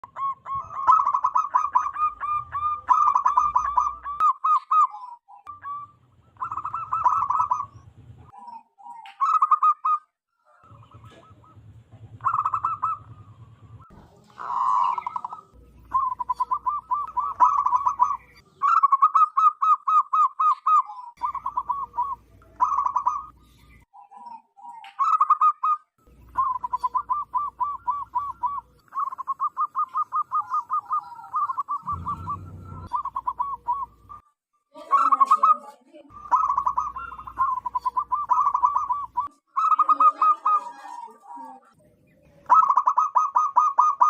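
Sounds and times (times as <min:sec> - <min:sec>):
dove cooing: 0:00.0 - 0:34.2, 0:34.8 - 0:44.0.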